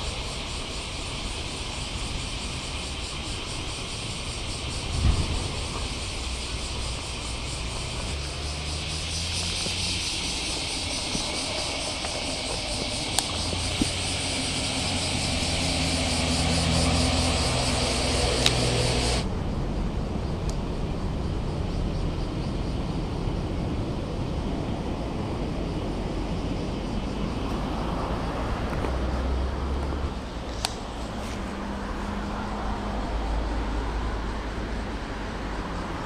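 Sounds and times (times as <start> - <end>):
outdoor background noise: 0.0 - 36.0
passing traffic engines: 0.0 - 36.0
steady high hiss: 0.0 - 36.0
sharp clicks: 18.3 - 19.2.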